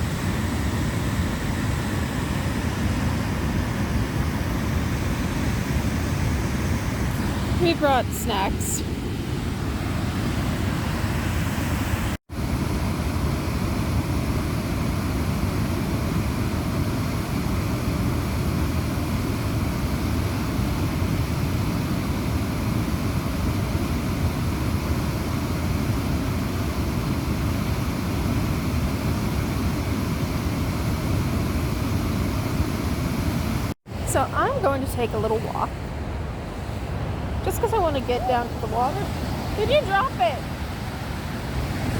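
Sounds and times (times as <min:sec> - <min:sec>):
waterfall rushing: 0:37.6 - 0:40.6.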